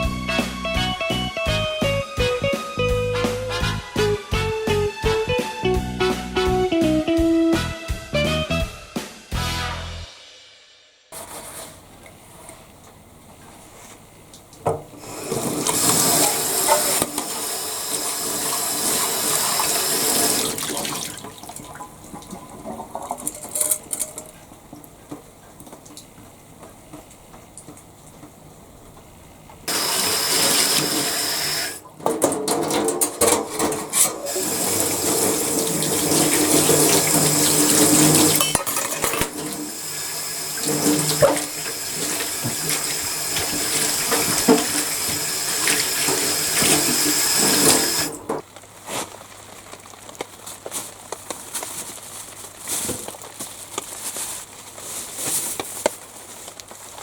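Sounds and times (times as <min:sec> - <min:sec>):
tap water running and splashing: 0:14.3 - 0:28.4, 0:29.7 - 0:48.7.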